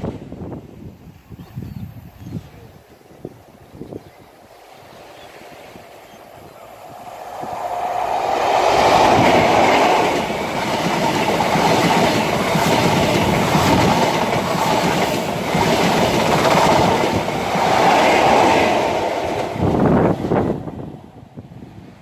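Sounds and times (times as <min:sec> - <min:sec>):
diesel train passing: 0:04.4 - 0:22.0
train wheels clattering on rails: 0:07.2 - 0:20.3.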